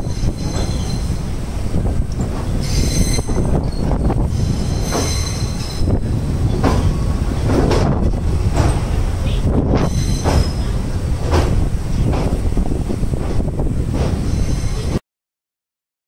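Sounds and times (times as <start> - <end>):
high wheel squeal: 0.0 - 1.4, 2.2 - 7.1, 9.3 - 10.8, 14.2 - 15.0
train wheels rumbling on rails: 0.0 - 15.0.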